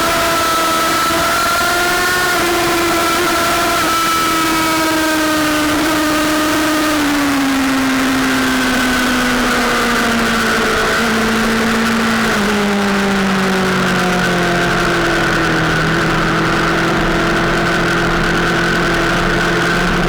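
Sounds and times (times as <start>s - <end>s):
motorcycle engine at high revs: 0.0s - 20.0s.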